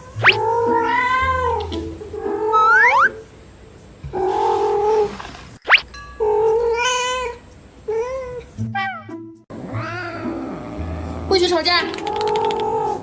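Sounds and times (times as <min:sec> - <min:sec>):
cats meowing: 0:00.0 - 0:03.2, 0:06.2 - 0:13.0
rising whistle-like sweep: 0:02.6 - 0:03.2.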